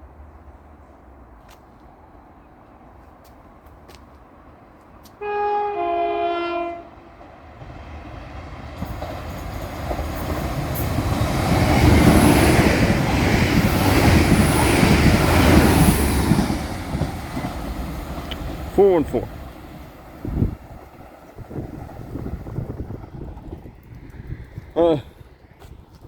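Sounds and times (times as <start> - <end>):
train rumbling along track: 4.2 - 26.0
train two-tone horn: 5.2 - 7.2.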